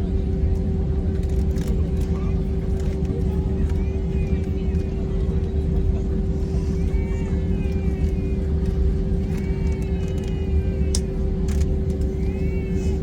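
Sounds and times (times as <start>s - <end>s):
airliner cabin engine rumble: 0.0s - 13.0s
constant hum: 0.0s - 13.0s
faint clicks: 8.0s - 12.1s.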